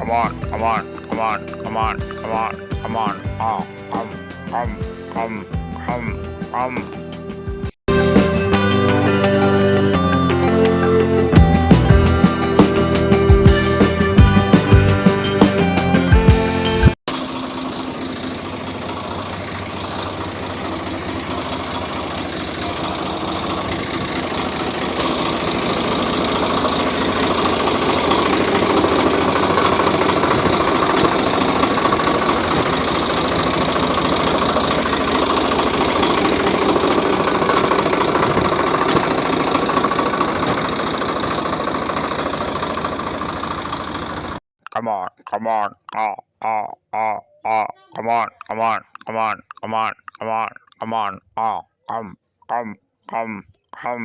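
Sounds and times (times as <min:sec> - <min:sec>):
music: 0:00.0 - 0:17.0
tractor motor running: 0:17.1 - 0:44.4.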